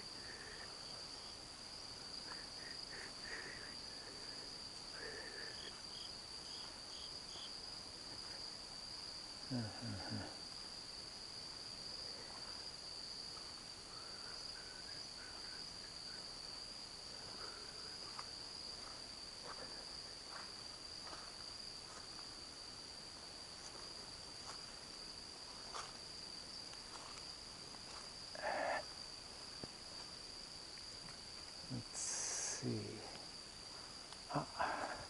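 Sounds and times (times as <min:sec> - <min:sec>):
insects trilling: 0:00.0 - 0:35.0
faint ticks: 0:34.0 - 0:34.3.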